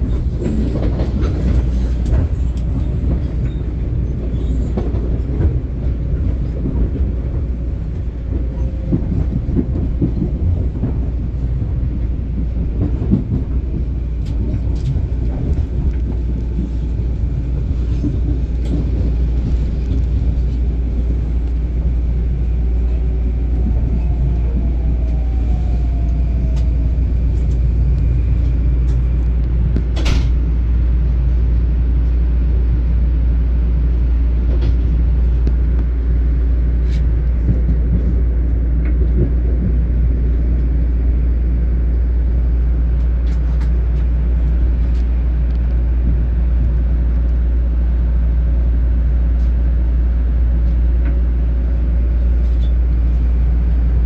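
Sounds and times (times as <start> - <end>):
train wheel clatter: 0.0 - 30.8, 42.0 - 47.4
train rumbling past: 0.0 - 54.0.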